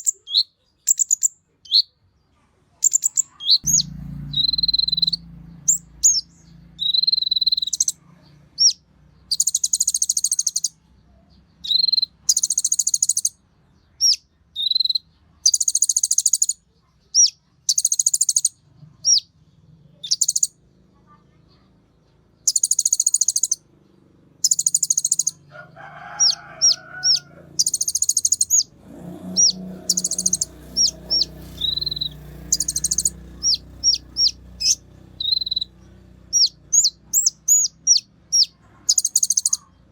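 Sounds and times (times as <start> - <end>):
faint low background sounds: 0.0 - 39.9
sunbird buzzy high trills: 3.5 - 8.0, 26.0 - 39.5
bird high whistles: 6.8 - 7.9, 29.4 - 35.7
bird sharp chips: 8.6 - 10.8, 22.5 - 23.6, 24.4 - 28.7, 29.3 - 35.7, 36.3 - 39.7.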